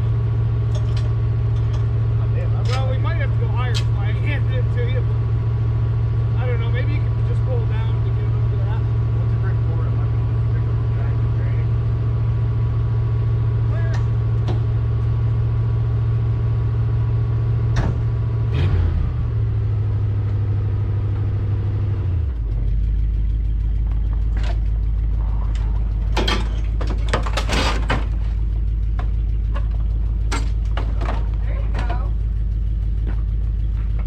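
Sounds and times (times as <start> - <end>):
truck engine running: 0.0 - 34.0
clanks and knocks: 0.6 - 4.0, 17.7 - 18.2, 23.8 - 32.2.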